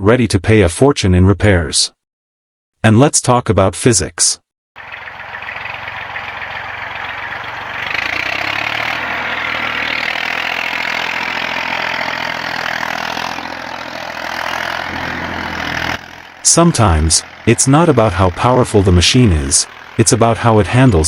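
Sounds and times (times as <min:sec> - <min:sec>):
tractor diesel engine running: 0:04.8 - 0:21.0.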